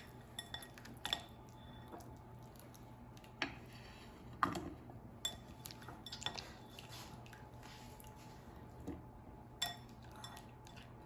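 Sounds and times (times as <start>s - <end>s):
spoon clinking against a dish: 0.0s - 2.0s, 5.2s - 6.4s, 9.6s - 10.9s.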